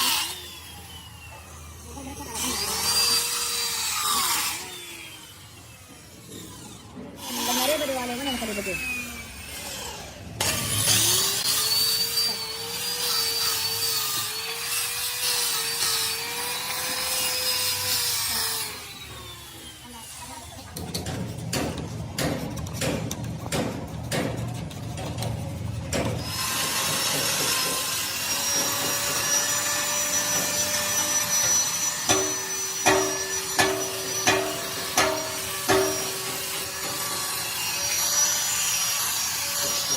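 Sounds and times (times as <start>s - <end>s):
power tool motor grinding metal: 0.0s - 39.9s
knocks on ringing metal: 32.0s - 37.2s.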